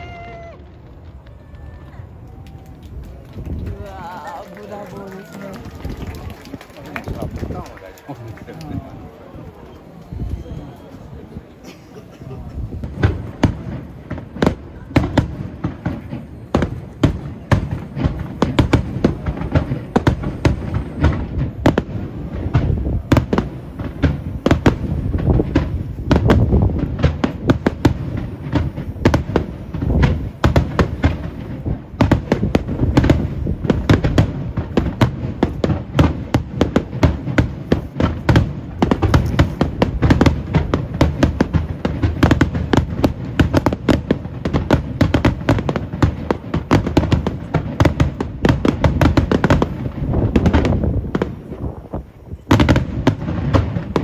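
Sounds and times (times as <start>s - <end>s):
fireworks shells bursting: 12.5s - 51.9s.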